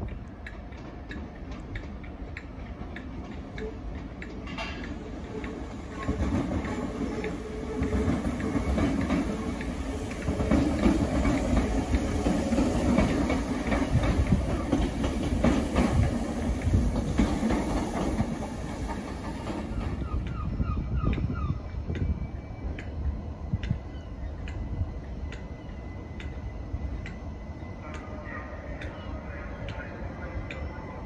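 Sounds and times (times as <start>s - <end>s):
electric train running in: 0.0s - 31.0s
wheels clicking over rail joints: 0.0s - 31.0s.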